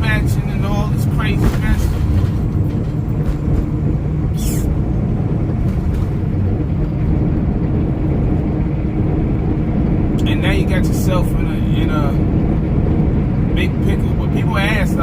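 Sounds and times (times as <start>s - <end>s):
road and engine drone: 0.0s - 15.0s.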